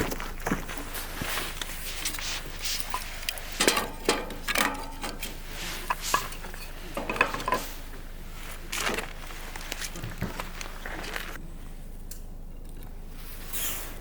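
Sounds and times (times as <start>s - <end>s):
dishes and utensils clinking: 2.2s - 7.9s.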